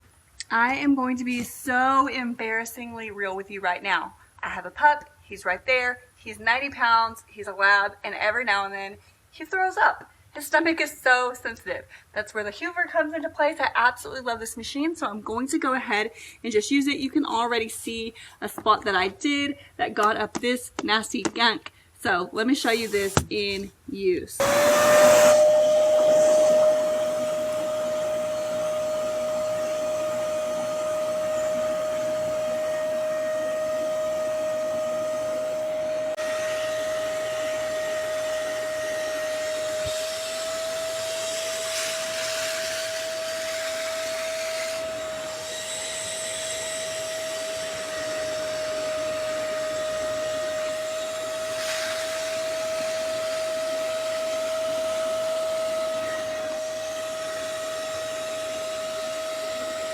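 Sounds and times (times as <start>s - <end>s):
suction motor whine and air rush: 22.6s - 23.6s, 24.4s - 59.9s.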